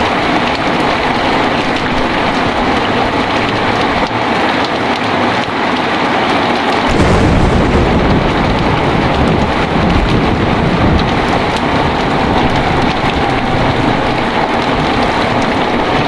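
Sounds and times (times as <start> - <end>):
heavy rain hiss: 6.8 - 16.0
low thunder rumble: 6.9 - 16.0.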